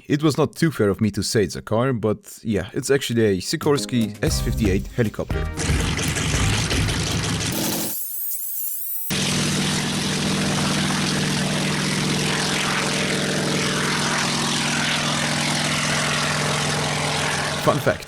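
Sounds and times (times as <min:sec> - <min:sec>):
helicopter engine running: 0:09.1 - 0:18.0.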